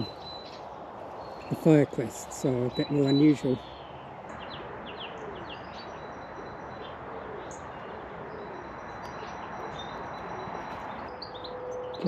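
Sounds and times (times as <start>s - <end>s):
distant road traffic hum: 0.0s - 12.0s
faint low bird calls: 0.0s - 12.0s
high bird chirps: 0.0s - 12.0s.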